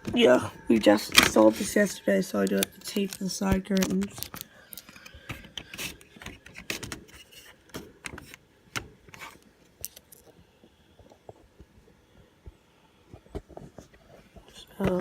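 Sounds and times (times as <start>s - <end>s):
objects being handled: 0.0s - 10.4s.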